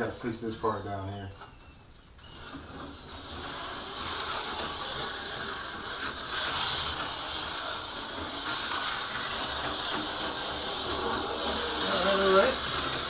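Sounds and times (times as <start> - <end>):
slot car electric motor whining: 0.0 - 13.0.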